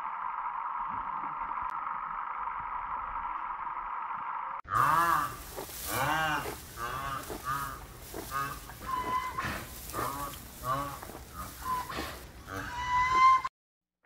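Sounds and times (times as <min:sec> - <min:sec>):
honking animal calls: 0:04.7 - 0:13.5.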